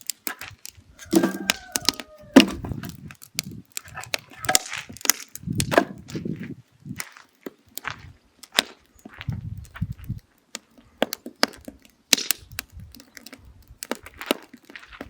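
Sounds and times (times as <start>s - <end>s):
firewood crackling and popping: 0.0s - 15.0s
low thuds: 2.3s - 3.0s.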